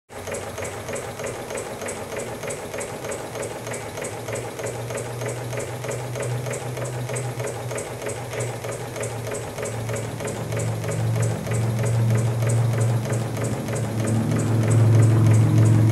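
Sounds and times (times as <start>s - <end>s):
small model engine running: 0.4s - 15.9s
steady low hum: 4.8s - 15.9s.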